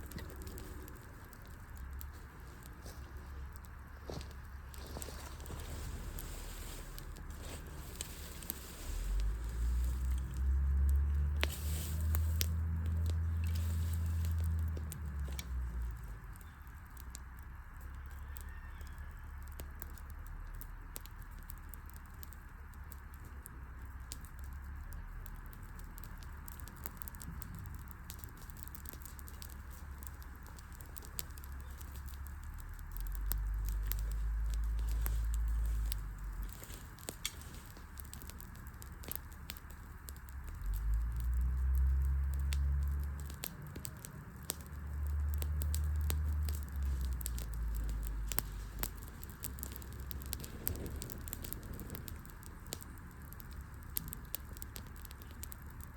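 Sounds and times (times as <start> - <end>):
low rumble: 0.0 - 16.3
campfire crackling and popping: 0.0 - 55.9.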